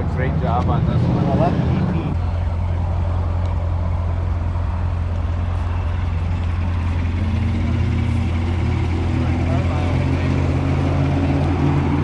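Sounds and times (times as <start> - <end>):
car engine idling: 0.0 - 12.0
higher engine note: 0.7 - 12.0.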